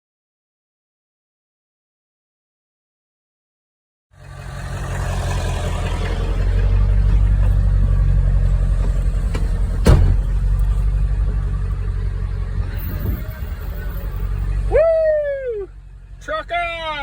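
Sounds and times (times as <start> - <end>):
diesel engine running: 4.2 - 17.0.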